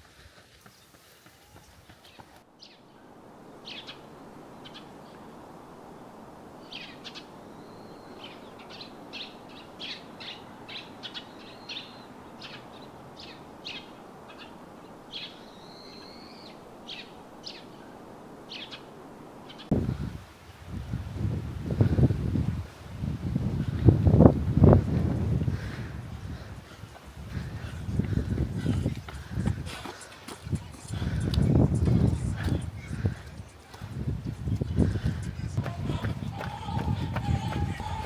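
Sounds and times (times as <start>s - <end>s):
birds chirping: 0.0s - 2.8s, 19.6s - 38.0s
outdoor background hiss: 0.0s - 38.0s.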